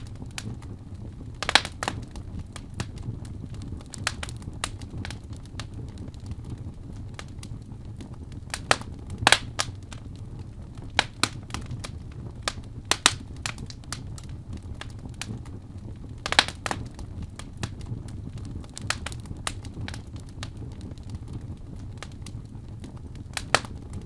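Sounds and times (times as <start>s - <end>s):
fire crackling and popping: 0.0s - 24.0s
low rumble of flame: 0.0s - 24.0s.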